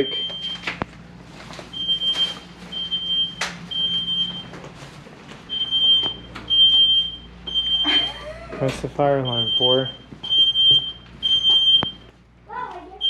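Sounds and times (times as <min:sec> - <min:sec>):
smoke alarm beeping: 0:00.0 - 0:00.8, 0:01.7 - 0:04.7, 0:05.5 - 0:08.2, 0:09.2 - 0:12.1.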